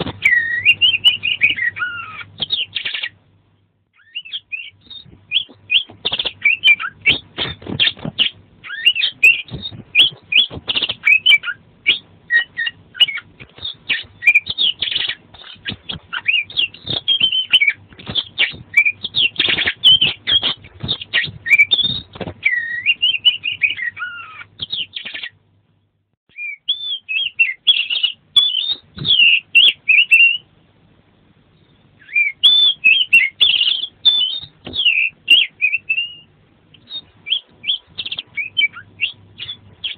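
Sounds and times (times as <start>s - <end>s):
bird singing whistled song: 0.2s - 3.2s, 4.0s - 25.4s, 26.3s - 30.5s, 31.6s - 39.9s.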